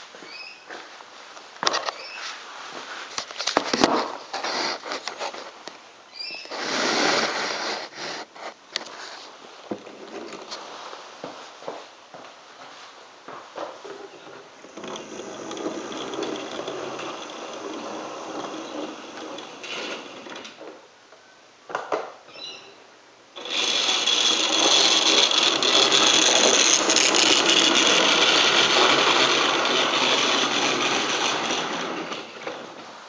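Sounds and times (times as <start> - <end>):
model train electric motor: 14.6 - 20.6, 23.4 - 32.7.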